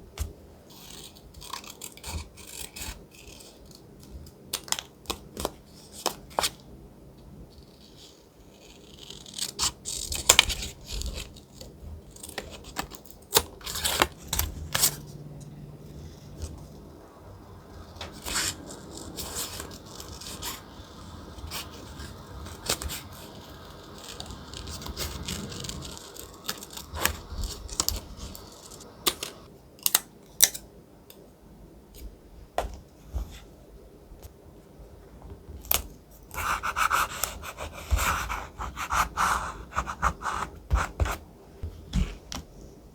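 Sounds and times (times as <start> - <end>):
thick paper rustling and tearing: 17.8 - 29.5.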